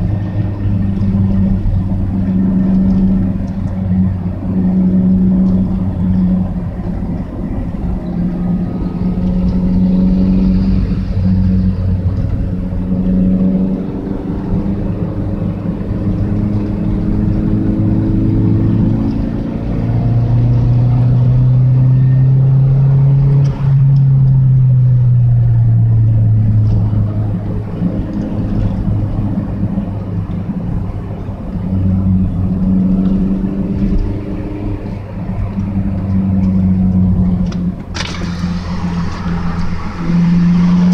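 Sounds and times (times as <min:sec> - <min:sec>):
car engine and exhaust running: 0:00.0 - 0:40.9.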